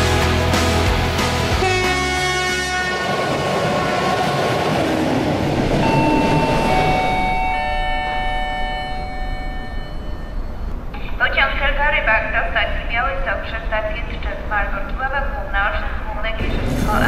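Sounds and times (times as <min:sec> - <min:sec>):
train wheels rumbling on rails: 0:02.6 - 0:07.9, 0:15.9 - 0:17.0.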